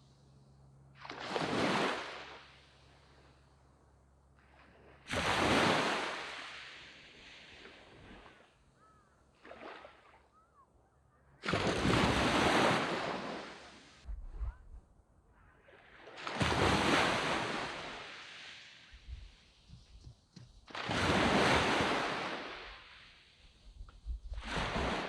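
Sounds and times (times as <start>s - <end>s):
waves breaking on sand beach: 1.0s - 3.4s, 4.4s - 8.6s, 9.3s - 10.2s, 11.4s - 14.1s, 15.6s - 25.0s.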